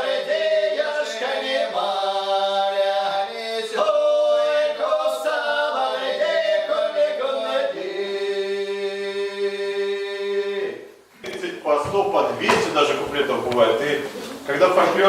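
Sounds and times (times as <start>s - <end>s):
folk ensemble singing a cappella: 0.0s - 11.1s.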